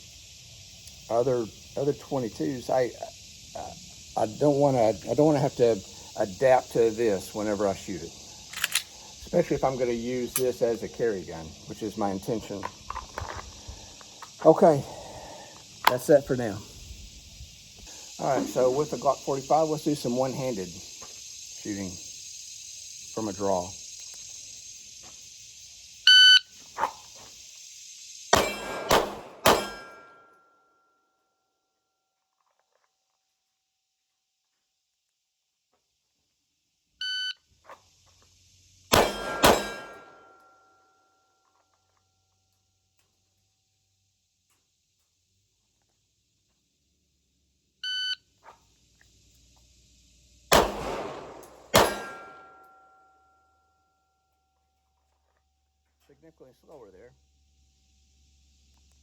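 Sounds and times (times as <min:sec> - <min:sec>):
insects droning: 0:00.0 - 0:30.9, 0:31.5 - 0:59.0
shot timer beep: 0:26.1 - 0:26.4, 0:47.9 - 0:48.2
pistol shots ringing: 0:28.4 - 0:30.2, 0:38.9 - 0:40.4, 0:50.5 - 0:52.7
metallic ring: 0:29.5 - 0:31.0, 0:39.0 - 0:41.3, 0:51.8 - 0:54.2
electronic start beep: 0:47.8 - 0:48.2.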